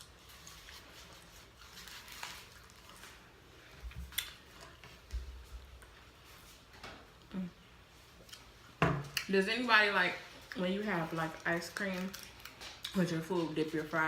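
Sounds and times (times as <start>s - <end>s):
food packaging clicks and rustles: 0.0s - 5.2s, 10.4s - 14.0s.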